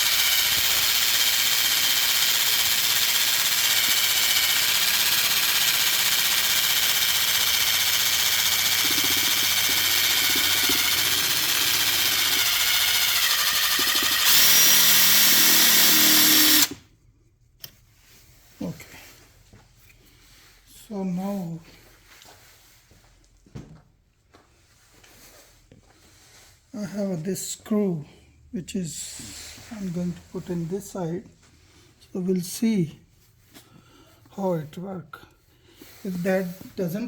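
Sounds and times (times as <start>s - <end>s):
electric drill running: 0.0s - 16.8s.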